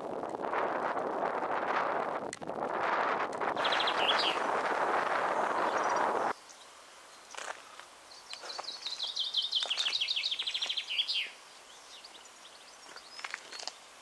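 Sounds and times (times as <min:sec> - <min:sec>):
faint bird chirps: 0:03.6 - 0:04.5, 0:08.0 - 0:13.8
songbird trilling: 0:03.6 - 0:04.5, 0:08.1 - 0:13.7.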